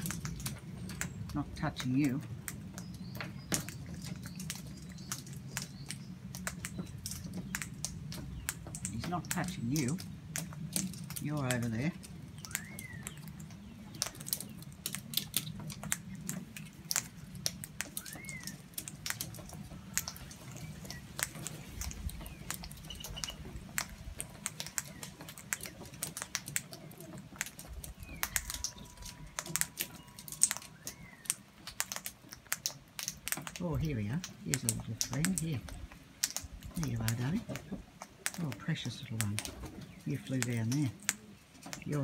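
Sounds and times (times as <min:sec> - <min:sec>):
bird chirps: 0:00.0 - 0:32.1
beaks tapping on hard surface: 0:00.0 - 0:42.0.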